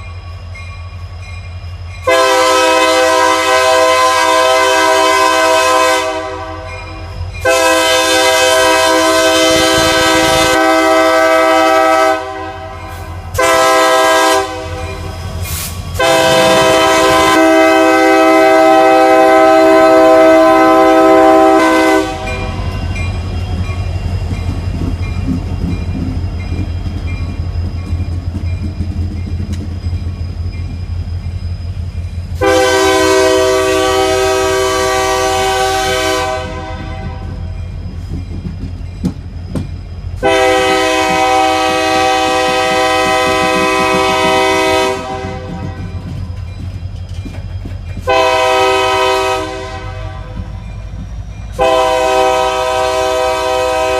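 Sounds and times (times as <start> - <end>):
train rumbling past: 0.0 - 53.9
locomotive air horn: 2.0 - 22.8, 32.4 - 37.4, 40.2 - 46.0, 48.0 - 50.6, 51.5 - 53.9.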